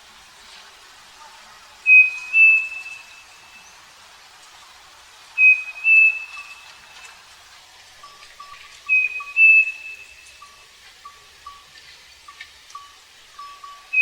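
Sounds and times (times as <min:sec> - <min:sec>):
bird singing two-note whistled song: 0:01.9 - 0:03.7, 0:05.4 - 0:06.6, 0:08.9 - 0:10.6, 0:13.7 - 0:14.0.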